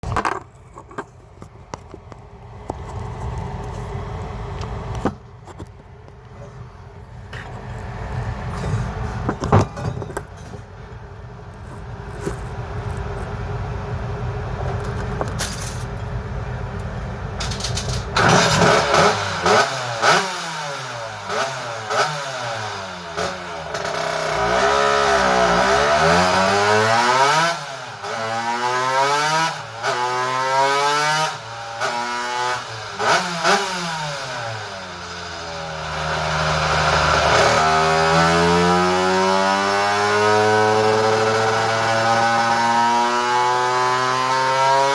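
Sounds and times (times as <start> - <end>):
scooter engine revving: 17.4 - 44.9.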